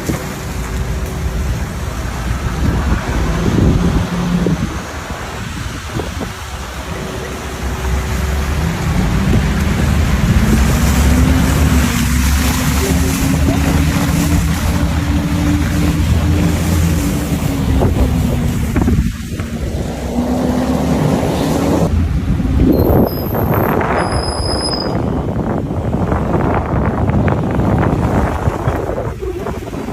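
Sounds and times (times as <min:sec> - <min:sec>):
wind rumble: 0:00.0 - 0:29.9.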